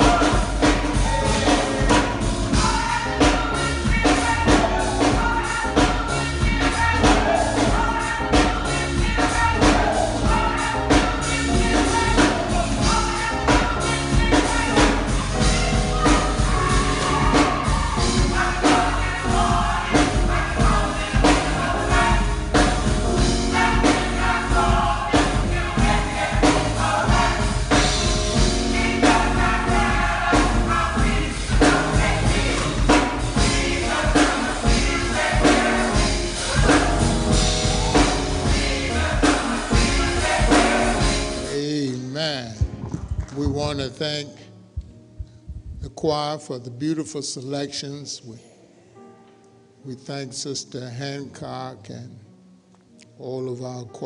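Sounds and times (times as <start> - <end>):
percussion beat: 0.0 - 41.7
choir singing: 0.0 - 42.1
instrumental accompaniment: 0.0 - 46.2.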